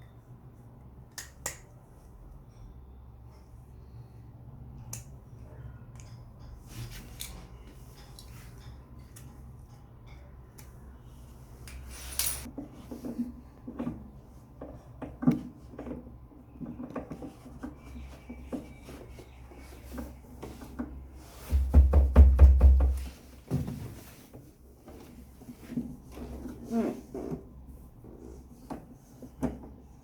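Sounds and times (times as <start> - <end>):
tools and parts clicking and knocking: 11.7 - 14.0.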